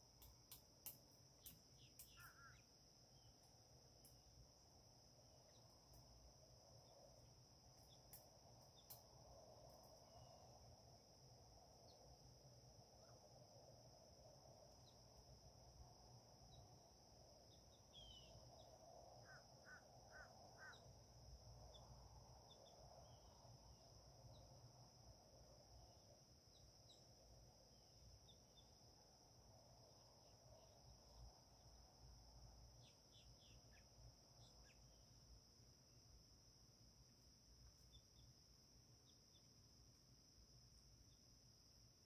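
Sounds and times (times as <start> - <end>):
faint bird chirps: 1.4 - 3.6, 10.0 - 10.5, 13.0 - 13.3, 17.5 - 23.5, 26.5 - 28.9, 32.7 - 35.3.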